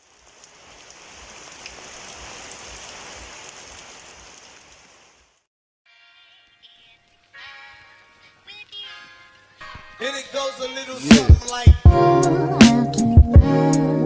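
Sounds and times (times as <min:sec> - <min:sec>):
rain falling: 0:00.0 - 0:05.5
soft music: 0:05.9 - 0:14.0.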